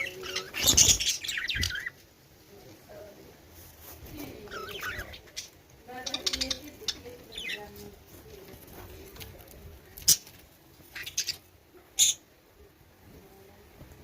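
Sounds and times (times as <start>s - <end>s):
pet birds calling: 0.0s - 2.0s, 4.2s - 8.0s, 10.0s - 12.4s.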